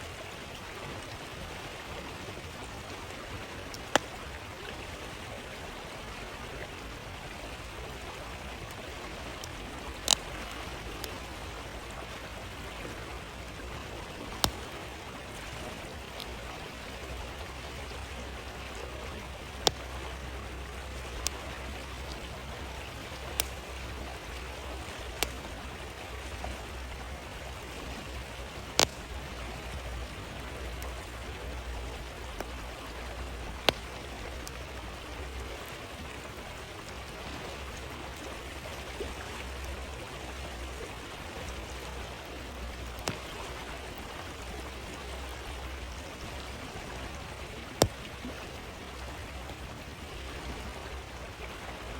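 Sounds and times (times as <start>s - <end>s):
stream flowing: 0.0s - 51.9s
campfire crackling: 1.4s - 51.6s
fire popping: 3.6s - 4.3s, 8.6s - 17.5s, 19.3s - 36.4s, 42.6s - 44.0s, 47.3s - 48.2s.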